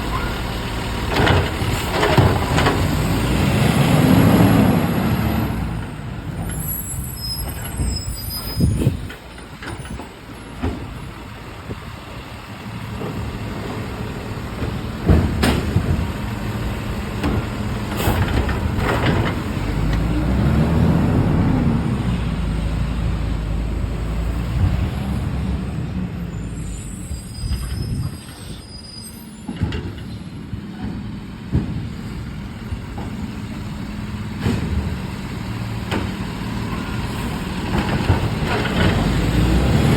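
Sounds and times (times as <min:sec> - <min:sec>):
air brake squeals: 0:00.0 - 0:00.5, 0:06.4 - 0:10.6, 0:26.2 - 0:30.4
garbage truck diesel engine: 0:00.0 - 0:39.9.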